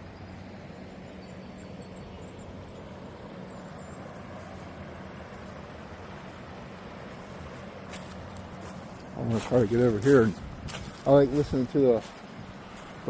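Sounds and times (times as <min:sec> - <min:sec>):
faint high bird chirps: 0:00.0 - 0:06.4
creek water flowing: 0:00.0 - 0:13.0
low steady hum: 0:00.0 - 0:13.0.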